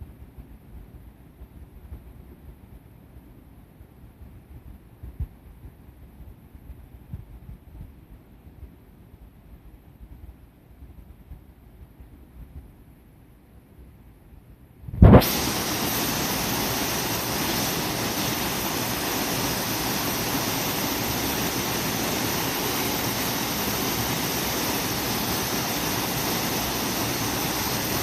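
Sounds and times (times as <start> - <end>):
waterfall rushing: 15.2 - 28.0.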